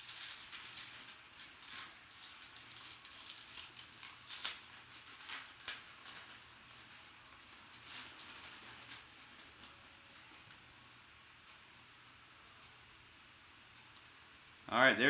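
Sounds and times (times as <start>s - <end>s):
packaging rustling and crinkling: 0.0s - 10.6s.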